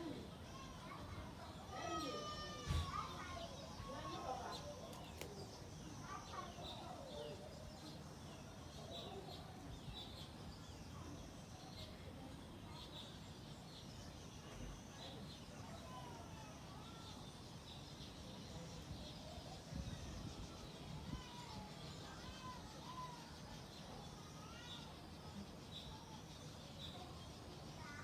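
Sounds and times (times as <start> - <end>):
faint birds chirping: 0.0 - 28.0
low steady background noise: 0.0 - 28.0.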